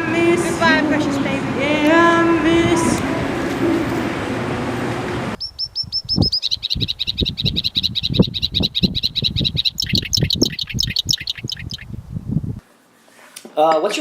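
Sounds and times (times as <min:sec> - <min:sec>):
bird trilling high chirps: 0:05.4 - 0:12.0.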